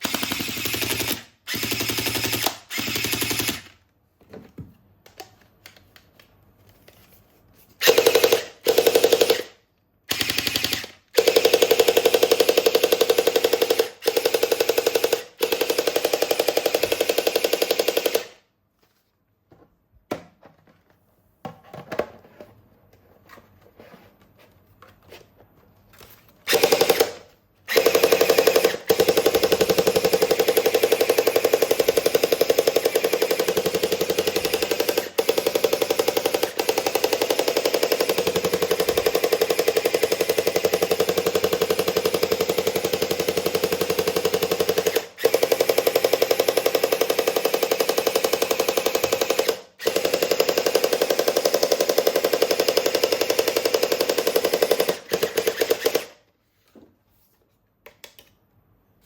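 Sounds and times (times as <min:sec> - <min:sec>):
toy gun firing bursts: 0:00.0 - 0:03.7, 0:07.8 - 0:18.4, 0:26.5 - 0:56.2.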